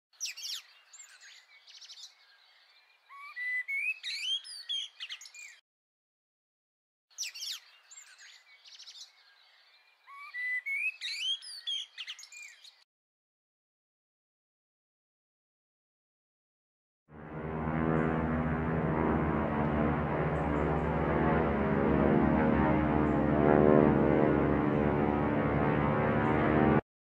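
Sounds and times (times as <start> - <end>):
birds chirping and whistling: 0.2 - 5.6, 7.2 - 12.8.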